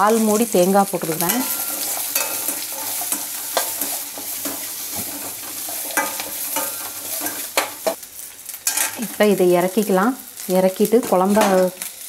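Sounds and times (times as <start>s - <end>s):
metal spoon scraping a pan: 0.0s - 8.0s, 8.6s - 9.2s
food sizzling in oil: 0.0s - 12.0s.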